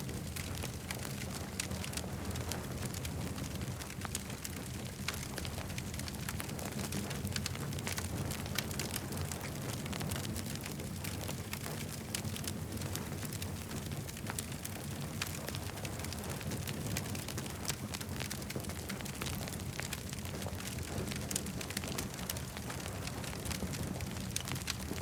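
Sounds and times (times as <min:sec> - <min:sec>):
low rumble of flames: 0:00.0 - 0:25.0.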